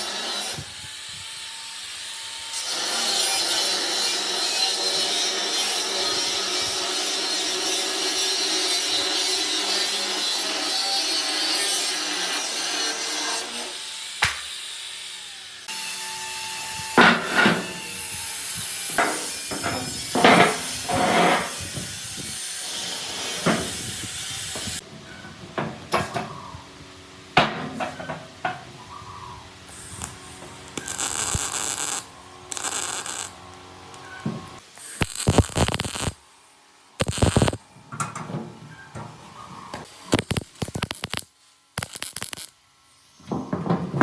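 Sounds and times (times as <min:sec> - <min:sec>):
tool knocks and scraping: 0:17.0 - 0:17.8, 0:18.9 - 0:22.0, 0:22.8 - 0:23.9, 0:24.6 - 0:26.4, 0:27.4 - 0:28.7, 0:43.2 - 0:44.0
high hissing bursts: 0:28.9 - 0:33.4, 0:34.1 - 0:36.3.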